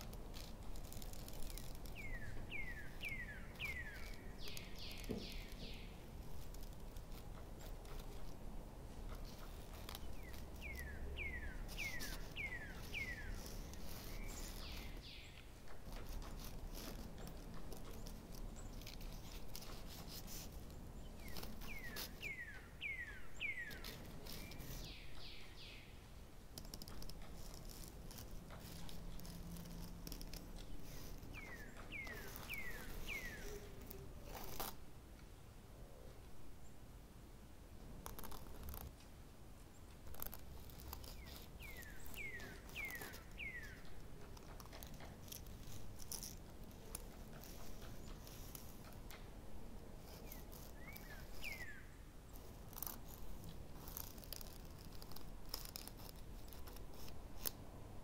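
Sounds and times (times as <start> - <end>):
small bird whistling song: 0.4 - 6.0, 9.2 - 26.0, 26.7 - 34.7, 40.1 - 49.0, 50.0 - 53.2.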